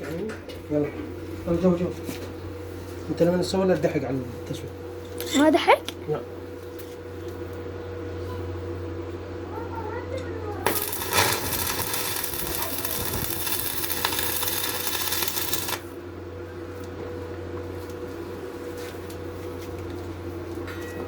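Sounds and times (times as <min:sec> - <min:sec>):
steady electrical hum: 0:00.7 - 0:20.7
crackling welding arc: 0:10.6 - 0:16.0.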